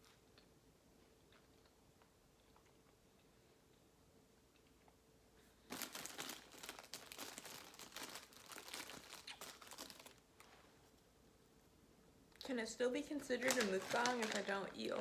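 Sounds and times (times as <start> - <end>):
plastic packaging crinkling: 5.7 - 10.5, 13.1 - 15.0.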